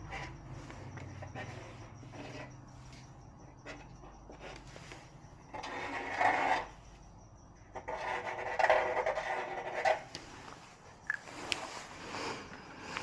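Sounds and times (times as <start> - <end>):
scraping by hand: 0.0 - 6.8.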